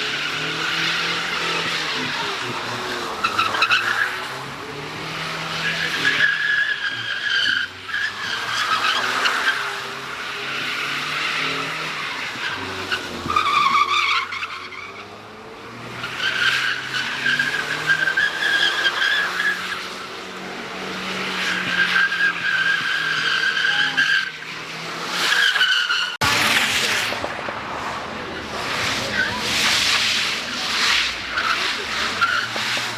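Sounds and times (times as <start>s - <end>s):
car engine revving: 0.0s - 32.9s
tyres squealing: 16.0s - 26.9s, 28.2s - 32.9s.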